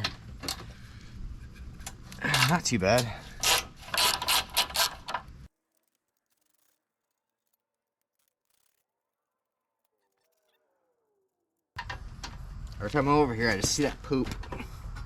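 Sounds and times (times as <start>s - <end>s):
ratchet wrench clicking: 3.0s - 5.1s.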